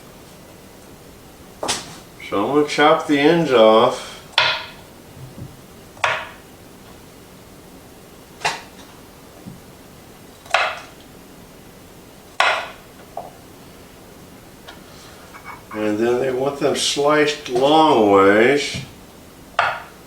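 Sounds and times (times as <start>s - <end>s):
knife chopping on cutting board: 12.4s - 12.8s.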